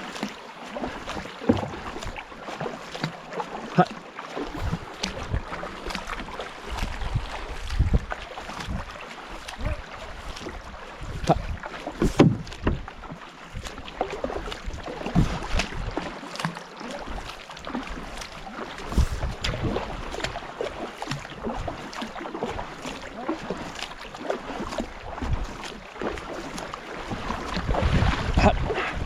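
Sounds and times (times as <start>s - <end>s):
paddles splashing in water: 0.0s - 29.0s
wind rumbling on microphone: 4.5s - 5.8s, 6.6s - 13.0s, 14.6s - 16.0s, 18.8s - 20.4s, 27.1s - 29.0s.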